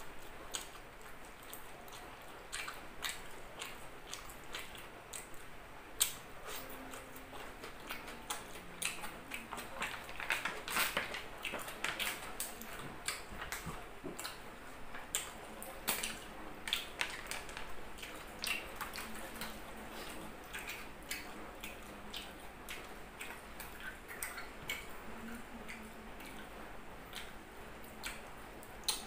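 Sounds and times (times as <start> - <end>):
wet mouth clicks and smacks: 27.9 - 29.0.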